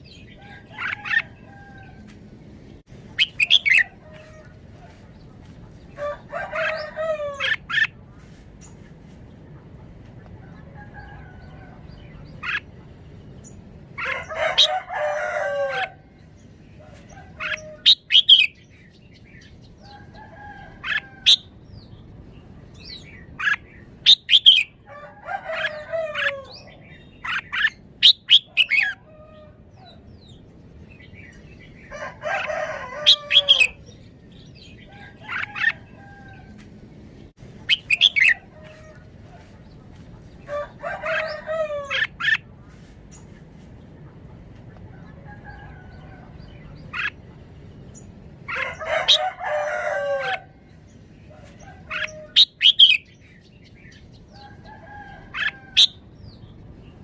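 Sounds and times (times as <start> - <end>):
lower warbling bird calls: 3.2 - 4.4.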